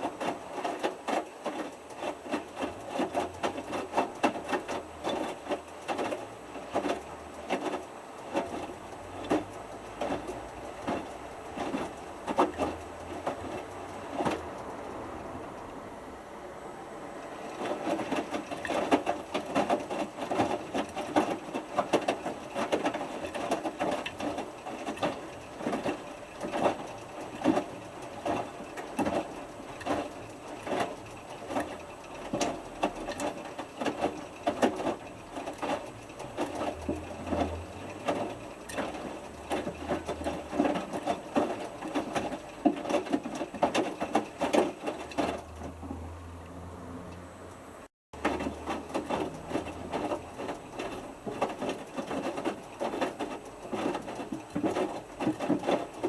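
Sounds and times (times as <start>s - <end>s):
water sloshing and swishing: 0.0s - 15.6s, 16.7s - 46.2s, 47.8s - 56.0s
washing machine drum tumbling: 48.2s - 56.0s.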